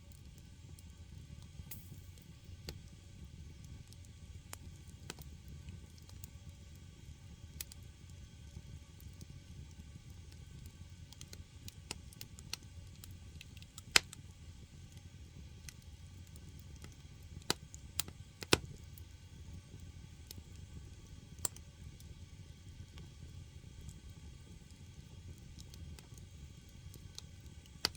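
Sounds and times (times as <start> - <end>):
low fire rumble: 0.0 - 27.9
firewood crackling and popping: 0.1 - 27.9.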